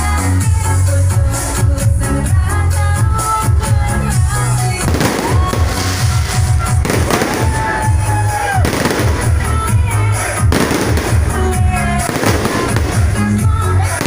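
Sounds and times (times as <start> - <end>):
dance music with bass beat: 3.1 - 14.0
fireworks crackling: 4.1 - 14.0.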